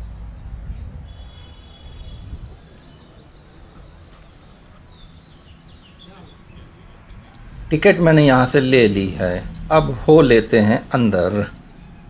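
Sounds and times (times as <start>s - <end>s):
small birds chirping: 0.0s - 11.6s
low background noise: 2.6s - 12.0s.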